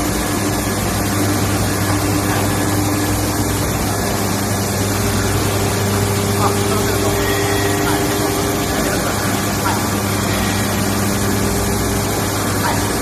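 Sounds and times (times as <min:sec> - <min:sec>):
lathe machine humming: 0:00.0 - 0:13.0.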